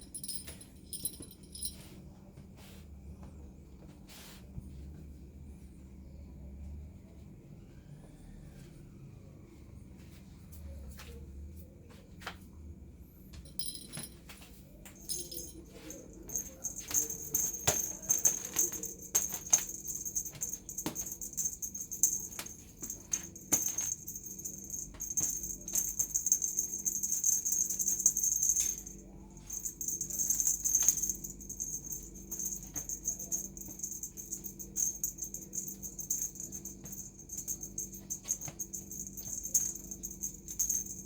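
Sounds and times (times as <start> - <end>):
small jingle bell jingling: 0.0 - 2.0, 13.4 - 41.0.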